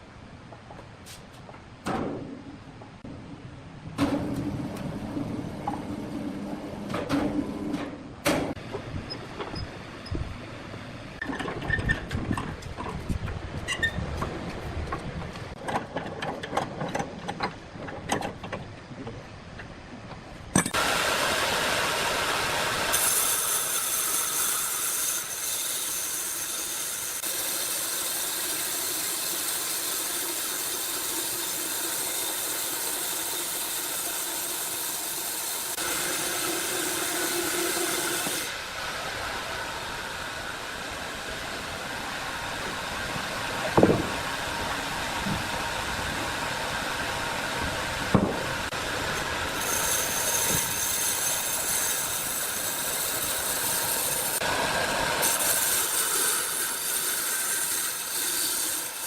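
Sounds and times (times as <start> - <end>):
saw cutting through log: 20.7 - 38.7, 48.7 - 59.0.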